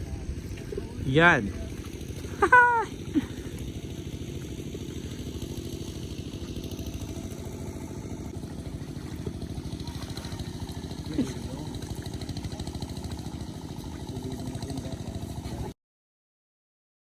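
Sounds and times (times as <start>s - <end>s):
hand tractor engine chugging: 0.0s - 15.7s.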